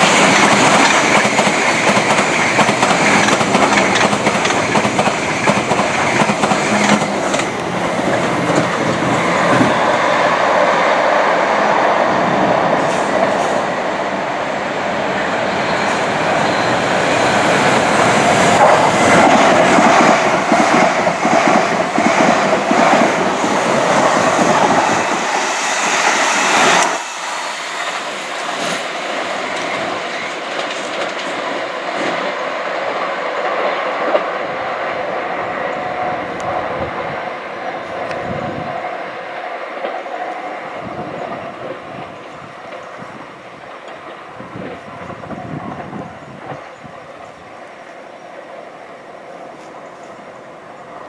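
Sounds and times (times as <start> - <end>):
train wheels clattering on rails: 0.0 - 10.3, 15.5 - 34.4.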